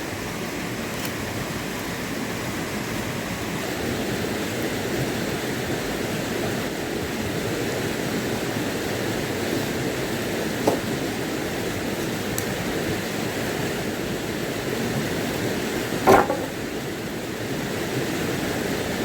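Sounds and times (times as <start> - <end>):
rushing water: 0.0 - 19.0
short knocks: 10.6 - 11.0, 16.0 - 16.7.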